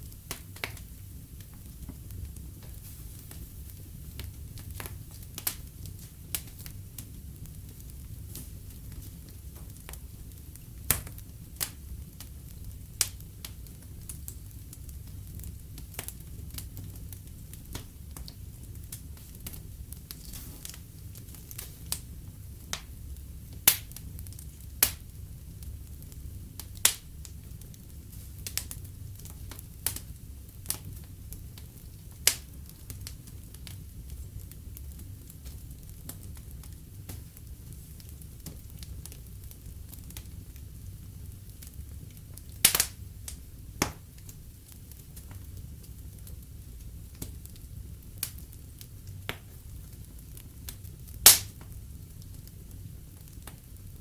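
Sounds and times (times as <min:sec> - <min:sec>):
fireplace fire crackling: 0:00.0 - 0:54.0.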